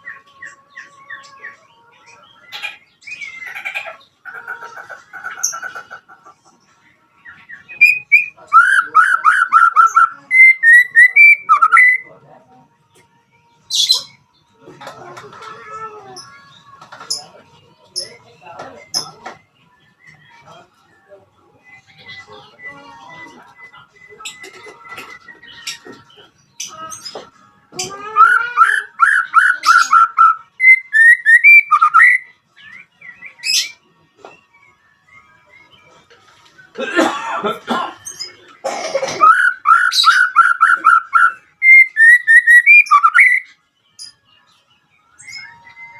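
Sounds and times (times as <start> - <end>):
bird whistled song: 0.0 - 6.2, 7.2 - 12.1, 18.0 - 20.5, 21.6 - 27.2, 27.8 - 33.8, 34.4 - 36.1, 39.0 - 45.9.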